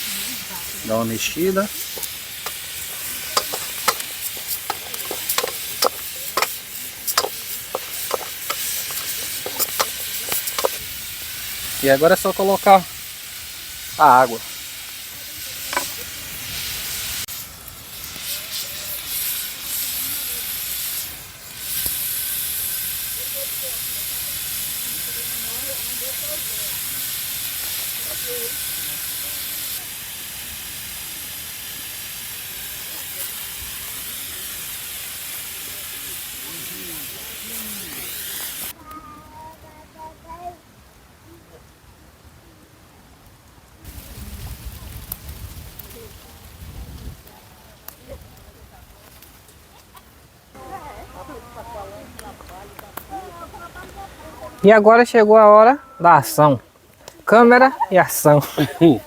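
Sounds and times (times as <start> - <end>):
pressure cooker steam hissing: 0.0 - 38.8
rice sizzling in a pot: 0.0 - 39.8, 43.6 - 59.0
spoon scraping and clinking on pot: 1.9 - 10.8.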